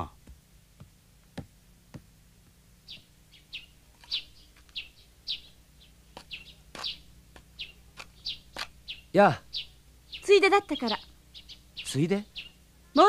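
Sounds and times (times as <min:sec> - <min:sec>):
songbird chirping: 0:02.8 - 0:13.0.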